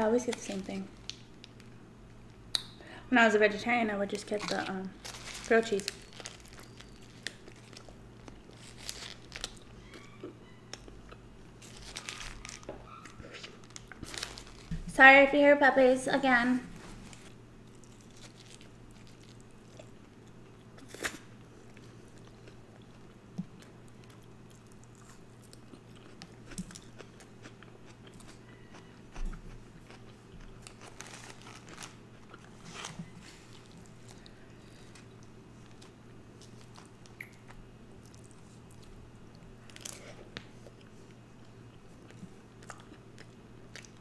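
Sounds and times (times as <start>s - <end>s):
faint low hum: 0.0s - 44.0s
person chewing food: 17.6s - 44.0s.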